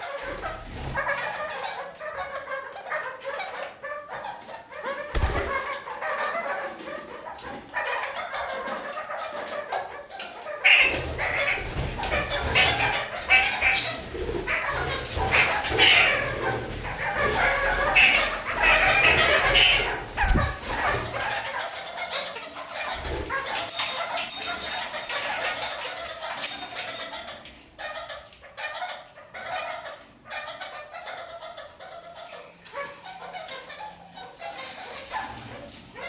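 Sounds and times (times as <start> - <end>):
parakeets chattering and calling: 5.0 - 6.6, 10.4 - 27.4.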